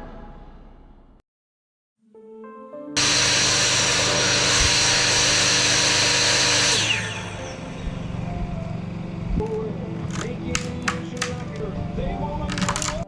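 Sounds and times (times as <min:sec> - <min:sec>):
power tool motor winding down: 0:03.0 - 0:09.4.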